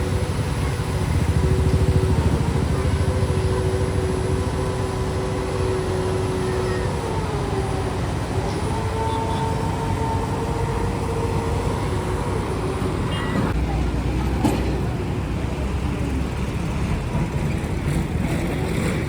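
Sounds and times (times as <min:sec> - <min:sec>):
motor whine: 0:00.0 - 0:13.6
vehicle engine rumble: 0:00.0 - 0:19.0.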